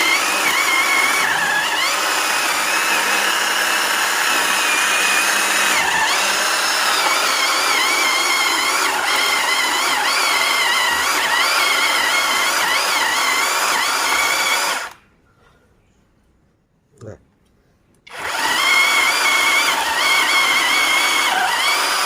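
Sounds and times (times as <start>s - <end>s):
chainsaw engine running: 18.1s - 22.0s.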